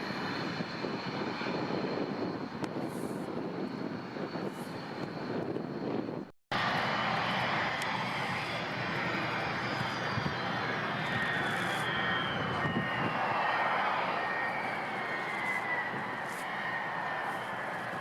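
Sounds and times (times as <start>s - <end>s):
airliner engines running: 0.0s - 18.0s
thin high whine: 6.7s - 18.0s.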